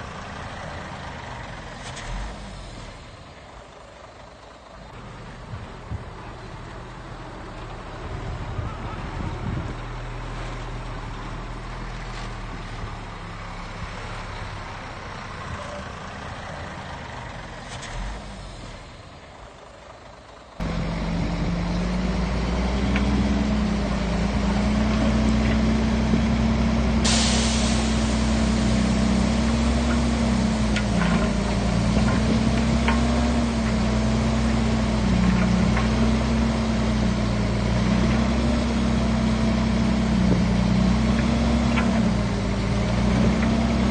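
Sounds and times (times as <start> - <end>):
heavy machinery diesel engines: 0.0 - 43.9
air hiss burst: 27.0 - 29.5.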